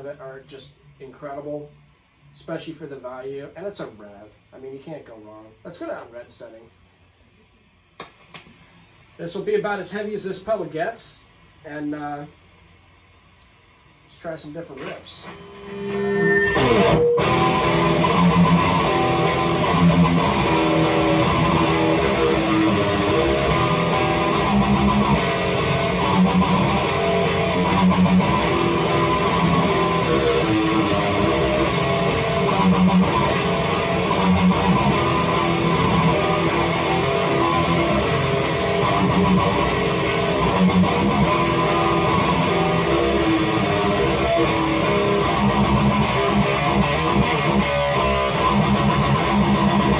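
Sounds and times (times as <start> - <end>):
distorted electric guitar riffs: 14.6 - 49.9.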